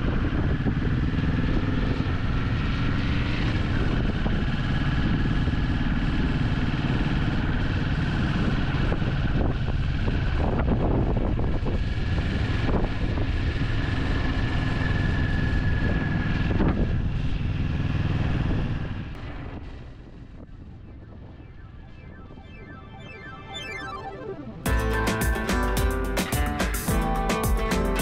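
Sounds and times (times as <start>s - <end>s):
motorcycle engine running: 0.0s - 20.8s
wind noise on microphone: 0.0s - 22.4s.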